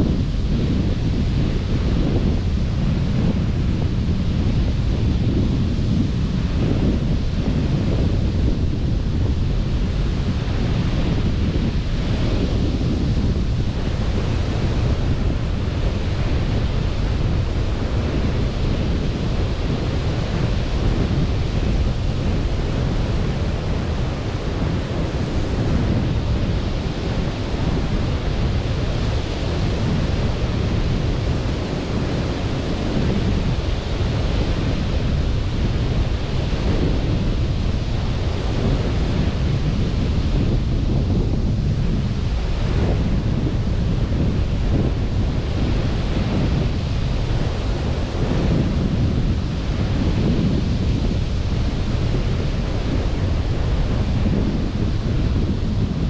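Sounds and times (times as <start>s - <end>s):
sea waves washing onto beach: 0.0s - 56.0s
wind rumble on microphone: 0.0s - 56.0s.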